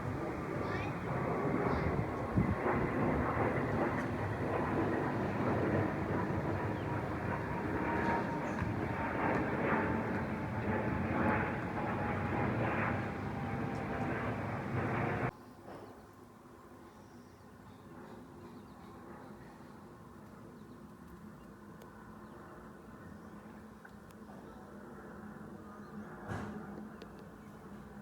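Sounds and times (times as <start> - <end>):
jet airliner passing overhead: 0.0 - 15.3.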